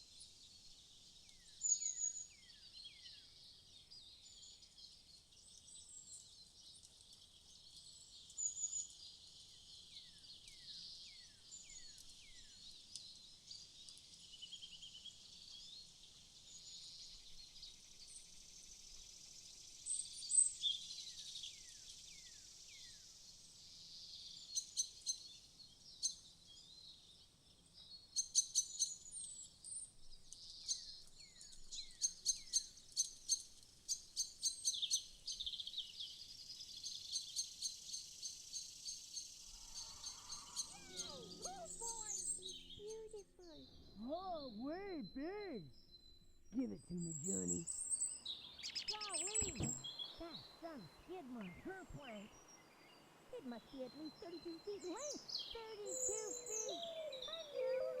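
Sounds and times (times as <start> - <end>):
birds chirping and twittering: 0.0 - 58.0
insects hissing: 38.0 - 43.5
loud bird calls: 39.4 - 43.7, 47.2 - 58.0
downward-sweeping chirps: 39.6 - 45.8.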